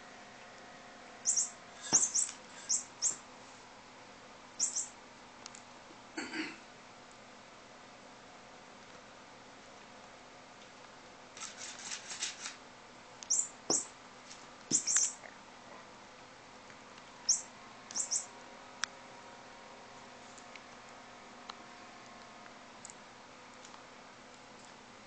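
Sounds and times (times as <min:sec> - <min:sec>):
bird high chirps: 0:01.2 - 0:03.2, 0:04.6 - 0:05.0, 0:13.3 - 0:13.9, 0:14.7 - 0:15.2, 0:17.3 - 0:18.3.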